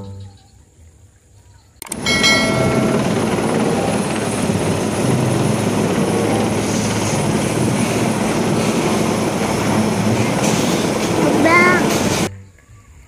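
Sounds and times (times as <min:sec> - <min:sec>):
helicopter flying overhead: 0:01.8 - 0:12.3.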